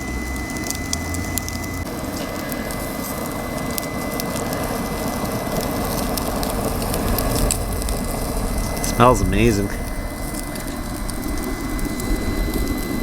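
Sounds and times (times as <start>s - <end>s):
fire crackling: 0.0s - 13.0s
meat sizzling on a grill: 0.0s - 13.0s.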